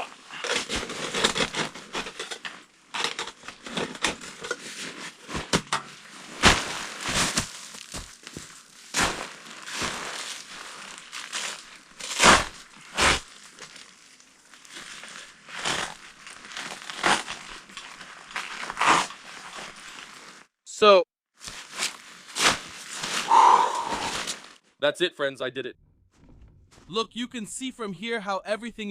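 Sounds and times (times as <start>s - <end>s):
crinkling rustle: 0.3s - 20.5s, 21.4s - 24.7s
knocks and clunks of gear: 25.8s - 26.9s.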